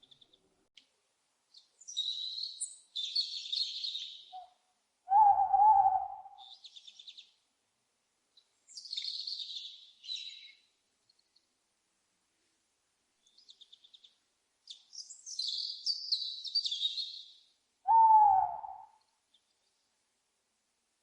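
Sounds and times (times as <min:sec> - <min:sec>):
owl hoot: 0:05.1 - 0:06.6, 0:17.9 - 0:19.0.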